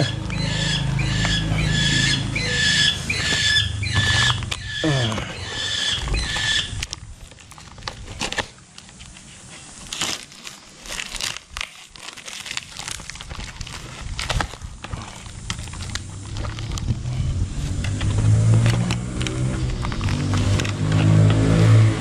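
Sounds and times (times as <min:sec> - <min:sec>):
packaging crinkling and rustling: 0:06.0 - 0:21.2.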